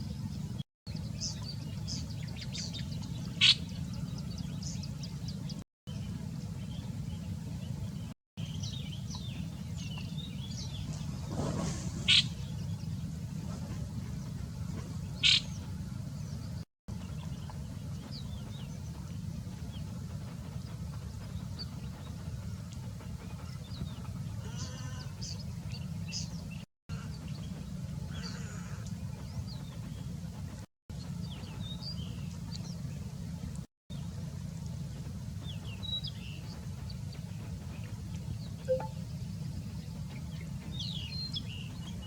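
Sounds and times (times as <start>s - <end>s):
small birds chirping: 0.0s - 11.2s, 15.0s - 15.7s.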